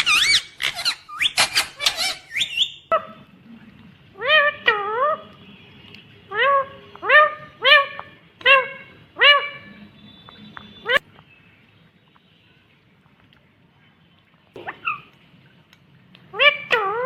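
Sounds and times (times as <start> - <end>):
parrot whistled calls: 0.0 - 3.0
parrot squawking: 0.0 - 3.2, 4.2 - 5.2, 6.3 - 9.8, 16.3 - 17.0.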